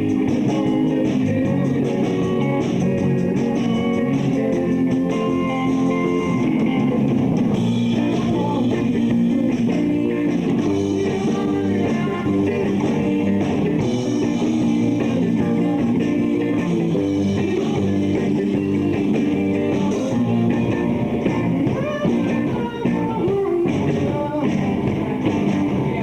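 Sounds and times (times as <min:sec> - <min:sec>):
electric guitars: 0:00.0 - 0:26.0
rock band playing live: 0:00.0 - 0:26.0.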